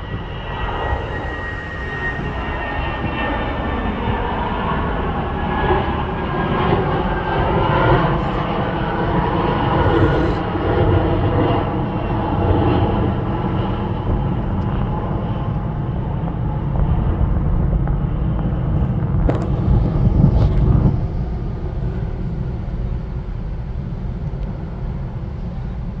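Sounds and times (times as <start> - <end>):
jet engine tones: 0.0 - 14.5
jet engines rumbling: 0.0 - 26.0.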